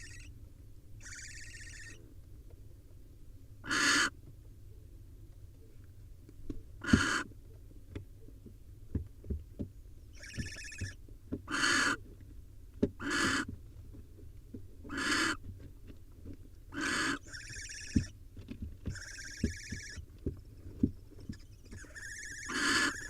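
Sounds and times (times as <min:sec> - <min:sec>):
owl chicks hissing calls: 0:00.0 - 0:00.3, 0:01.0 - 0:02.0, 0:03.7 - 0:04.1, 0:06.8 - 0:07.2, 0:10.2 - 0:12.0, 0:13.0 - 0:13.5, 0:14.9 - 0:15.4, 0:16.8 - 0:18.1, 0:18.9 - 0:20.0, 0:21.2 - 0:23.0
tonal owl chick call: 0:00.0 - 0:00.3, 0:01.0 - 0:02.0, 0:03.7 - 0:04.1, 0:06.8 - 0:07.3, 0:10.1 - 0:12.0, 0:13.0 - 0:13.5, 0:14.9 - 0:15.4, 0:16.8 - 0:18.2, 0:18.8 - 0:20.1, 0:21.2 - 0:23.0.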